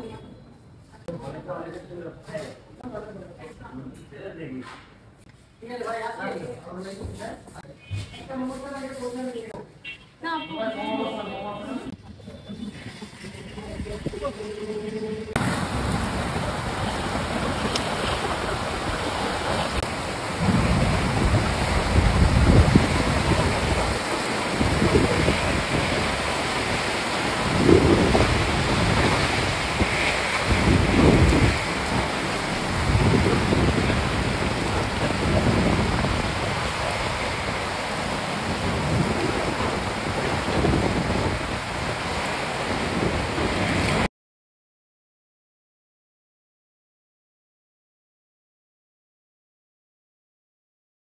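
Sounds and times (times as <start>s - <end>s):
wind buffeting microphone: 12.9s - 14.4s, 15.4s - 44.1s.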